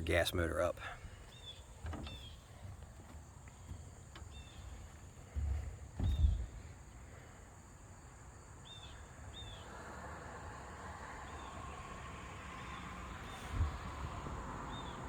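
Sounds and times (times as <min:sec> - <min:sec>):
low thump: 0:05.4 - 0:06.6.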